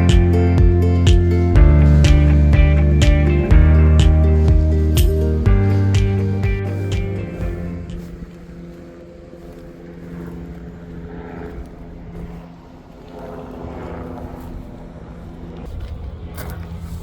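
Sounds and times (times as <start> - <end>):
guitar music: 0.0 - 10.6
boat engine droning: 0.0 - 17.0.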